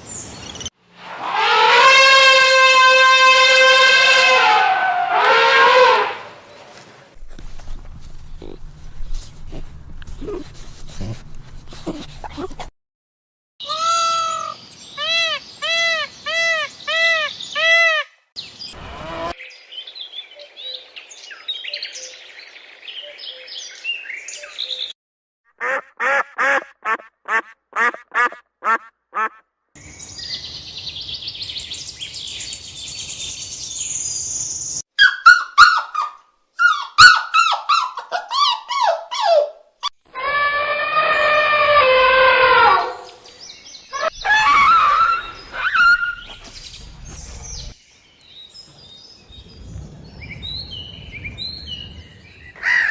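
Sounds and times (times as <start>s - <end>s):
animal calls: 8.2s - 8.7s, 13.6s - 18.1s, 43.9s - 46.5s.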